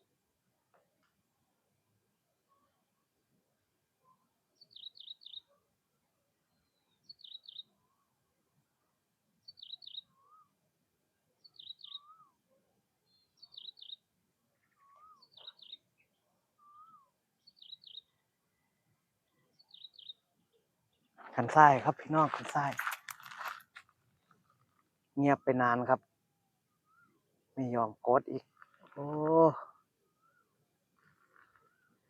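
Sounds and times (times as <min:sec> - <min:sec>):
bird singing high notes: 0:11.6 - 0:12.3, 0:14.8 - 0:15.8.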